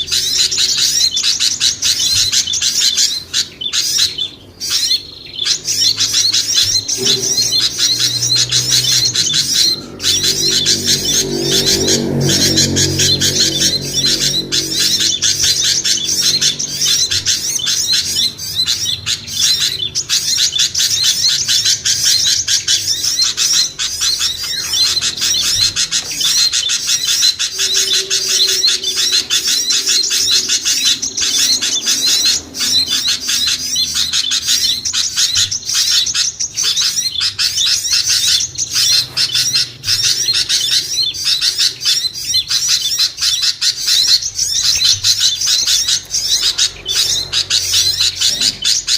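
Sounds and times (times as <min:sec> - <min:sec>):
songbirds chirping and twittering: 0:00.0 - 0:48.9.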